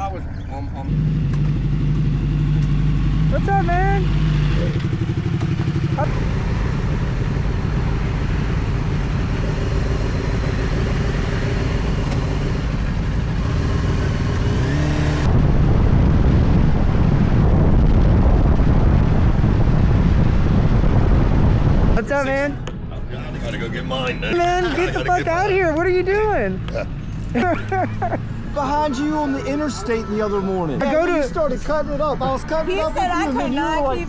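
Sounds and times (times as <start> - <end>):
motorcycle engines running: 0.0 - 17.4, 22.6 - 29.6
motorcycle revving: 0.0 - 22.2
rough engine rumble: 0.0 - 28.9.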